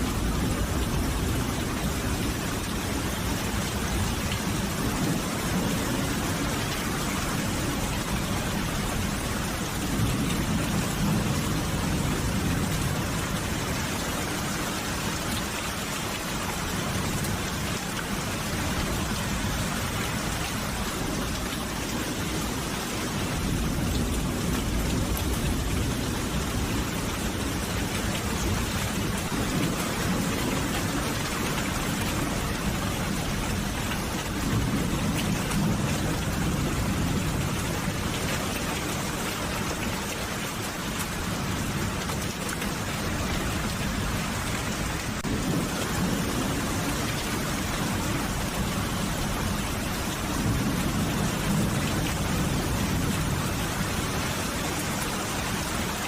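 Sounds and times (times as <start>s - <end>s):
rumbles of thunder: 41.2s - 54.4s.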